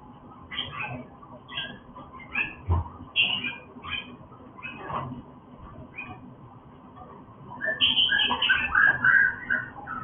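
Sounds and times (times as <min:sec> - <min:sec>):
bird chirps and whistles: 0:07.6 - 0:10.0.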